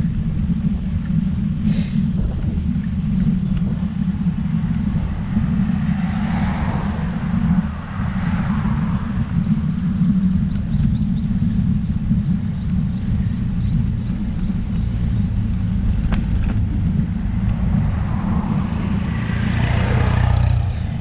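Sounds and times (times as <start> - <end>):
wind rumble on microphone: 0.0 - 21.0
car passing: 3.9 - 10.1, 14.8 - 21.0.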